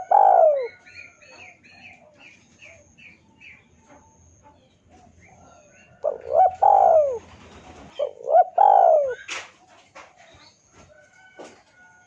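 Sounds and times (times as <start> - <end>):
dove cooing: 0.0 - 2.9, 4.9 - 9.5.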